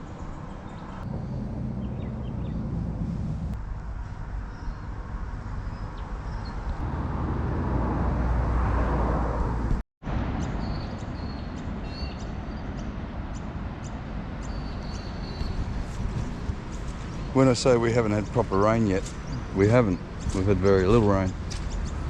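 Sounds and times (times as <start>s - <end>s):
small birds chirping: 0.0s - 2.7s, 10.5s - 22.0s
vehicle passing: 0.8s - 3.7s, 6.6s - 10.5s, 15.3s - 22.0s
steady low rumble: 1.0s - 11.8s, 15.2s - 22.0s.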